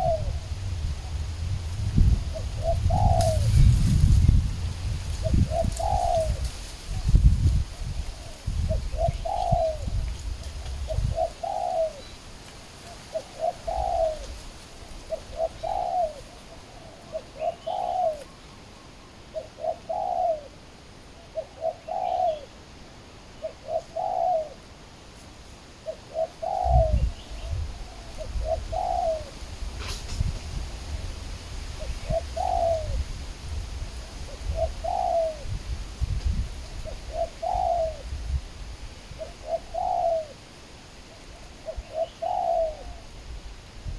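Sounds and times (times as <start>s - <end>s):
doves cooing: 0.0s - 1.3s, 2.2s - 4.2s, 5.0s - 7.3s, 7.9s - 20.6s, 21.2s - 22.6s, 23.4s - 24.6s, 25.8s - 30.1s, 31.7s - 33.1s, 34.0s - 35.6s, 36.8s - 38.2s, 39.1s - 40.4s, 41.1s - 43.1s.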